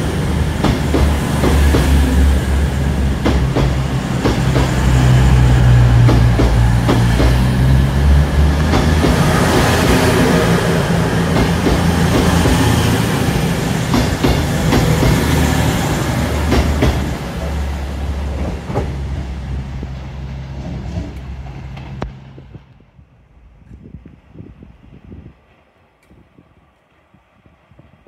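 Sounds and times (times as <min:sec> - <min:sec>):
train passing: 0:00.0 - 0:28.0.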